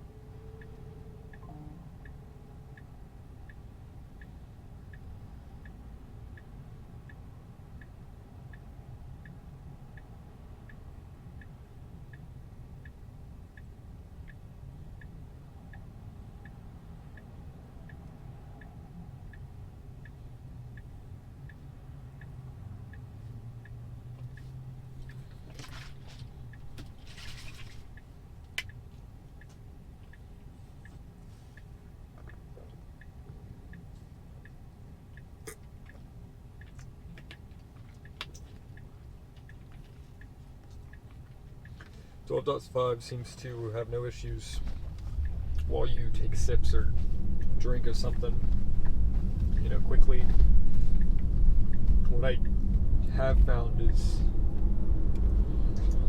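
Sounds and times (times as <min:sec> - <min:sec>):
low cabin hum: 0:00.0 - 0:05.7, 0:23.1 - 0:56.0
turn signal ticking: 0:00.0 - 0:27.0, 0:27.8 - 0:56.0
low road rumble: 0:00.0 - 0:56.0.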